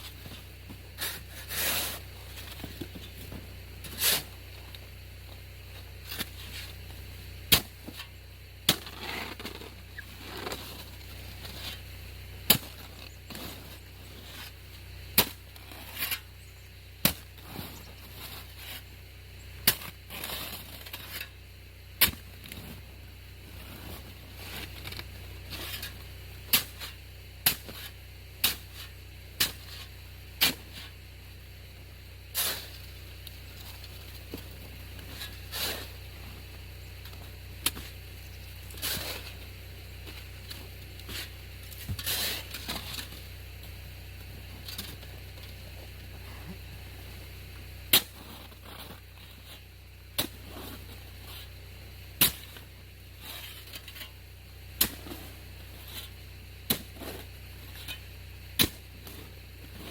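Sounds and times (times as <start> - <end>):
snow shovel striking hard snow: 0.0 - 4.5, 7.5 - 8.1, 8.7 - 11.8, 12.4 - 16.3, 17.0 - 18.8, 19.6 - 21.3, 22.0 - 22.8, 23.5 - 31.0, 32.3 - 32.9, 33.5 - 36.5, 38.6 - 43.8, 47.9 - 49.6, 50.2 - 51.5, 52.2 - 54.1, 54.8 - 58.0, 58.6 - 59.9
shovel scraping snow: 0.0 - 4.9, 5.7 - 16.4, 17.0 - 18.9, 19.6 - 21.4, 22.0 - 31.0, 32.3 - 51.6, 52.2 - 54.2, 54.8 - 59.9.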